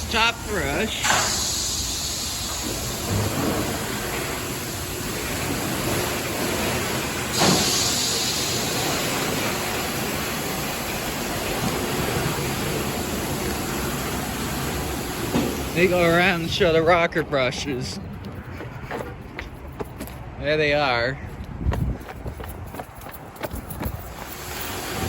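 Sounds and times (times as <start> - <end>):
spray hiss: 0.2 - 16.4.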